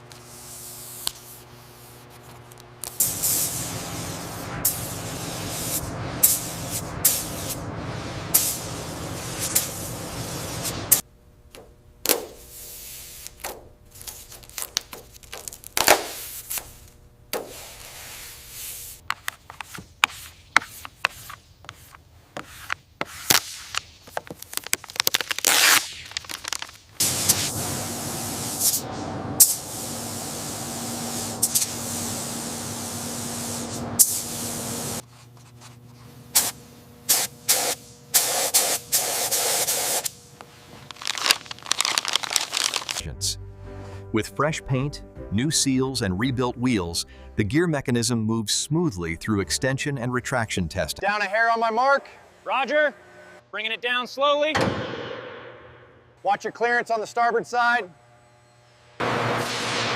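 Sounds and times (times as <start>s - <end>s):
steady hum: 0.0s - 19.1s, 25.9s - 44.0s
short hissing bursts: 2.9s - 11.0s, 12.4s - 13.4s, 27.0s - 35.0s, 36.3s - 40.2s
rubbing noises: 12.2s - 26.6s.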